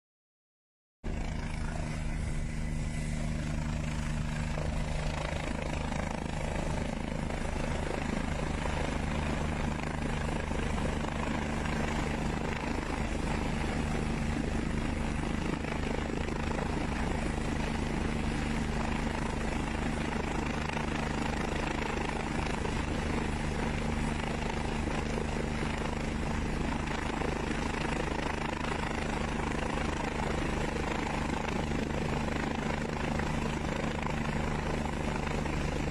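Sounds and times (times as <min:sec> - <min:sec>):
helicopter rotor beating: 0:01.0 - 0:35.9.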